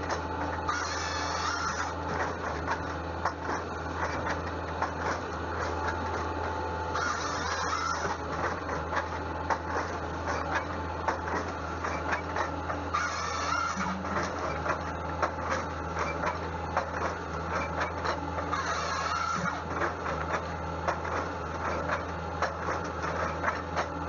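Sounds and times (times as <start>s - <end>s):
sawmill machinery hum: 0.0s - 24.0s
machinery squeals: 0.6s - 2.0s, 6.9s - 8.2s, 11.8s - 14.7s, 17.5s - 19.7s.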